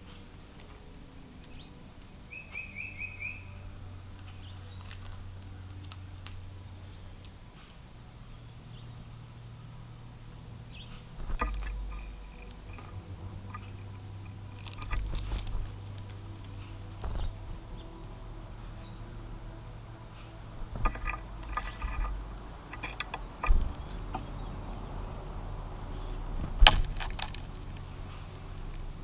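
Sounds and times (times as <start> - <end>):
steady low hum: 0.0 - 29.0
faint bird chirps: 1.4 - 5.8, 10.0 - 26.2
knocks and scrabbling at bird feeder: 11.0 - 15.8, 20.7 - 24.5.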